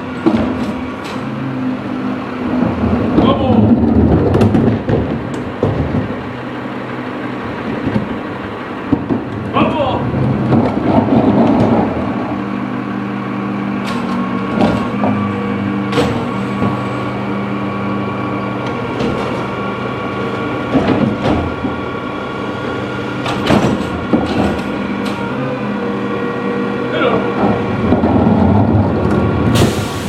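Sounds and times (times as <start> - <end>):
truck engine running: 0.0 - 30.0
metal clanks and knocks: 2.5 - 6.3, 8.8 - 9.6, 10.2 - 12.1, 13.8 - 16.9, 18.6 - 19.6, 20.2 - 21.9, 23.2 - 25.2.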